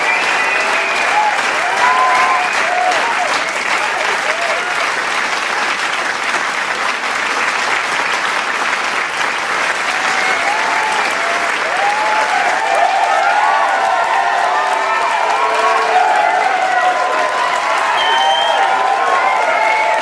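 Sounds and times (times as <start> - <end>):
crowd cheering and shouting: 0.0 - 5.1, 9.7 - 20.0
large crowd applauding: 0.0 - 20.0.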